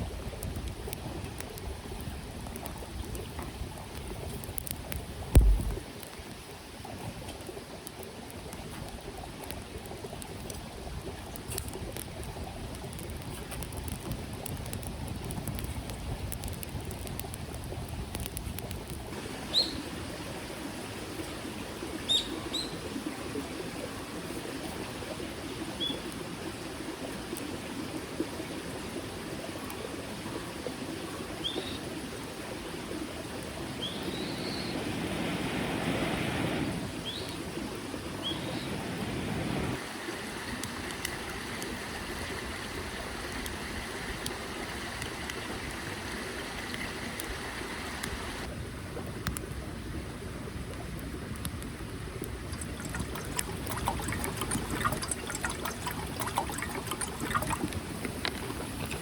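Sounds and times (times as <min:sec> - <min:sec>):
stream running: 0:00.0 - 0:59.0
water rush: 0:00.0 - 0:59.0
bird chirps: 0:19.5 - 0:19.8.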